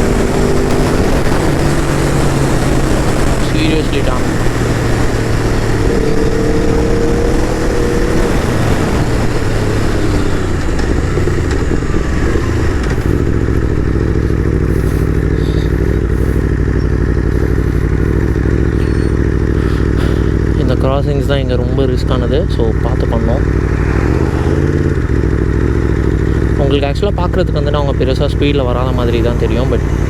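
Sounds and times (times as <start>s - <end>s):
wind rush: 0.0s - 20.4s, 23.4s - 26.3s
motorcycle engine running: 0.0s - 30.0s.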